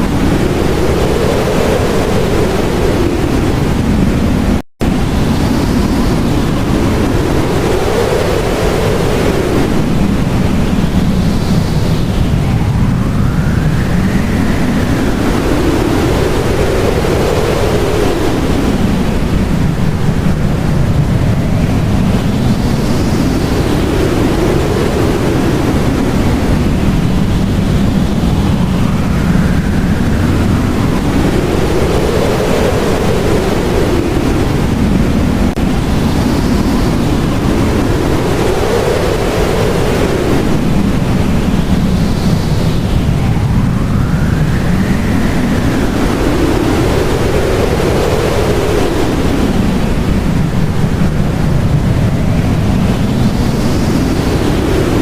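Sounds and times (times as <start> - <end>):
howling blizzard wind: 0.0 - 55.0.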